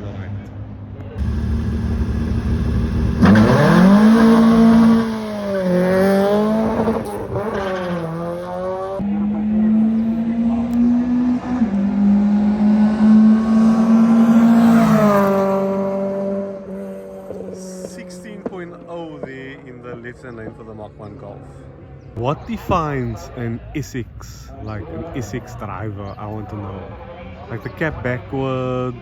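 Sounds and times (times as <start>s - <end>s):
drag racing car accelerating: 1.2s - 19.7s.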